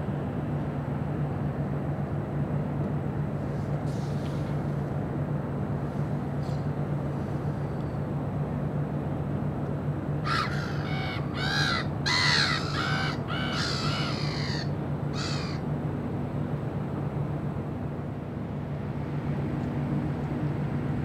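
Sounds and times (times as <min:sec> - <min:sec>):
steady low hum: 0:00.0 - 0:21.0
bird calling loudly: 0:10.3 - 0:15.6.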